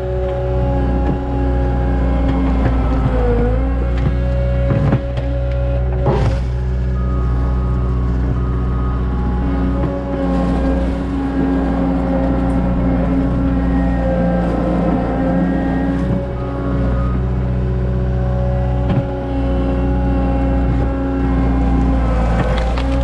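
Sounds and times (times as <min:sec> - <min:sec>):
diesel engine under load: 0:00.0 - 0:23.0.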